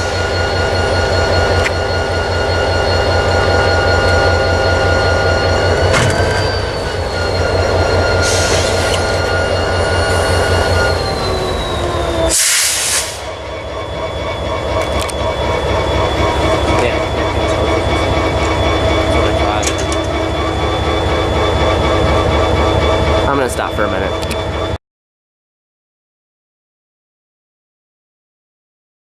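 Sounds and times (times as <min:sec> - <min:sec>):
diesel locomotive idling: 0:00.0 - 0:24.8
air hiss bursts: 0:12.3 - 0:13.3.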